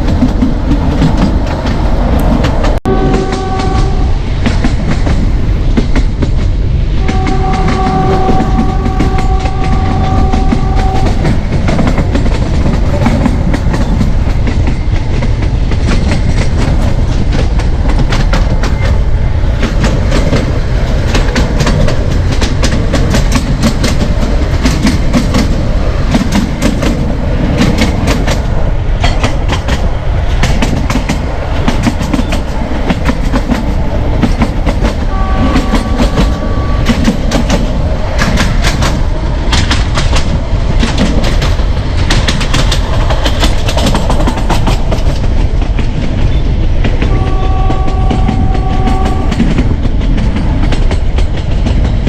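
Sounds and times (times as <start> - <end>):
rumble of moving train carriage: 0.0 - 52.0
train wheels clattering over rail joints: 0.0 - 52.0
diesel locomotive horn: 2.8 - 4.3, 7.0 - 11.4, 35.0 - 37.5, 46.9 - 49.7.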